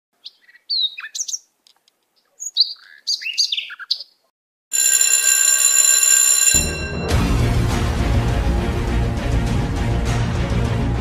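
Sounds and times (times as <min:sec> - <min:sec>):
birds chirping: 0:02.2 - 0:04.2
music with bright chord: 0:06.9 - 0:11.0.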